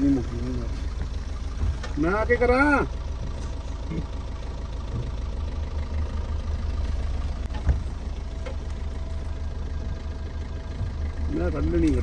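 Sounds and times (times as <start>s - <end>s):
car engine idling: 0.0s - 12.0s
thump: 7.6s - 7.9s.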